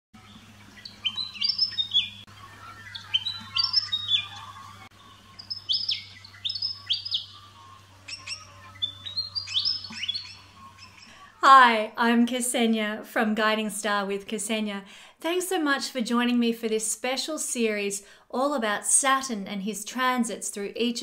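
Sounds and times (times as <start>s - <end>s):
songbird chirping: 0.2s - 11.3s.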